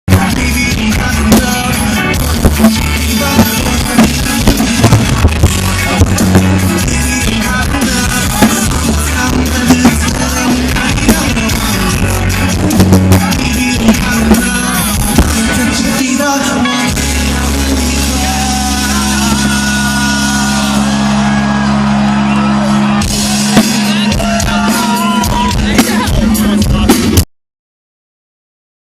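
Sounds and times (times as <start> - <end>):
drum hits: 0.1 - 15.7, 22.9 - 27.3
live reggae rock band: 0.1 - 27.2
person singing: 0.1 - 27.2.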